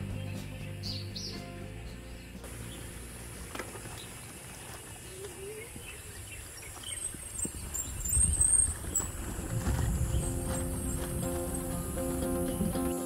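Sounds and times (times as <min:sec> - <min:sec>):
birds chirping: 0:00.0 - 0:13.0
low rumble: 0:08.2 - 0:12.7.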